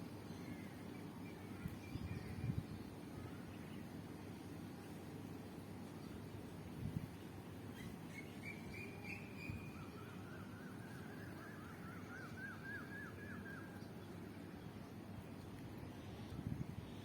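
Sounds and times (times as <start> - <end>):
bird calling: 7.7 - 13.9.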